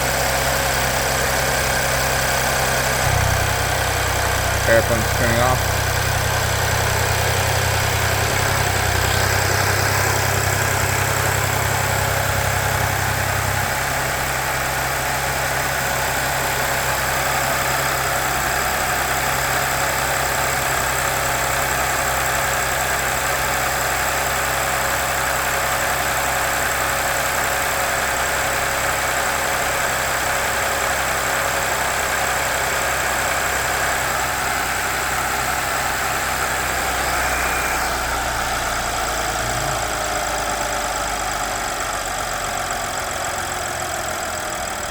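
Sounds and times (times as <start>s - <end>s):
car engine idling: 0.0s - 44.9s
low hum: 3.0s - 14.7s.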